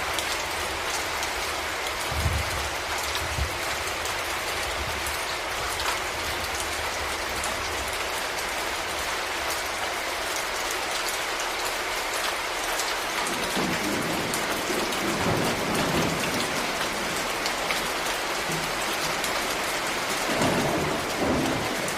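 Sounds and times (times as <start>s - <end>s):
steady rain falling: 0.0s - 21.9s
distant thunder rumble: 13.2s - 21.9s.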